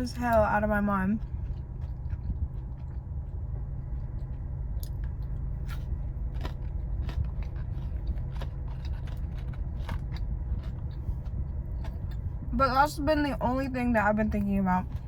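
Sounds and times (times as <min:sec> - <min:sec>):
steady low hum: 0:00.0 - 0:15.0
person chewing food: 0:01.2 - 0:12.5.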